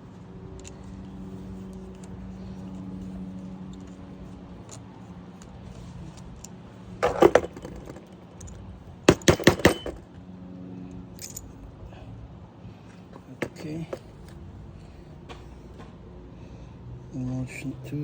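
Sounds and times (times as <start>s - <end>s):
small metal pieces clinking: 11.2s - 11.5s.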